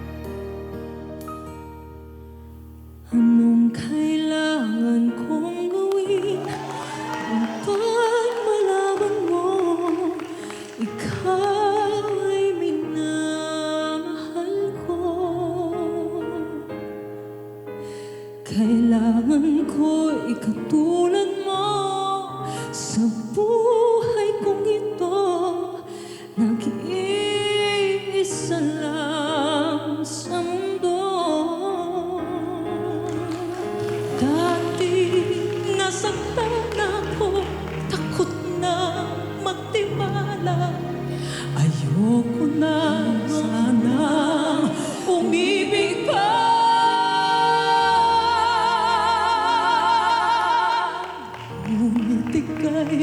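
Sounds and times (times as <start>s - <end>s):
woman singing love ballad: 3.1s - 17.0s, 18.4s - 53.0s
band accompaniment: 33.1s - 38.4s.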